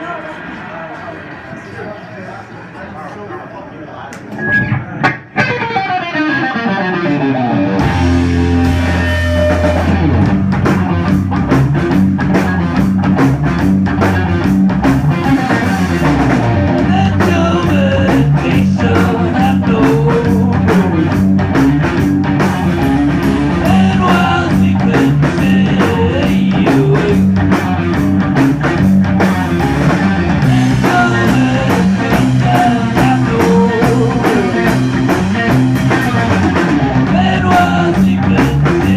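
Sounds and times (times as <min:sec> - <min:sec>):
rock band playing: 0:00.0 - 0:02.8, 0:04.3 - 0:38.9
distorted electric guitar riff: 0:04.4 - 0:38.9
drums hitting hard: 0:07.8 - 0:38.9.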